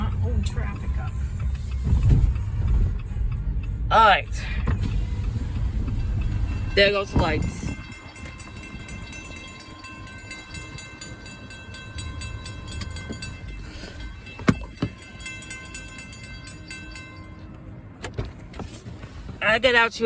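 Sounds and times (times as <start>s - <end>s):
railroad crossing bell ringing: 3.0s - 18.1s.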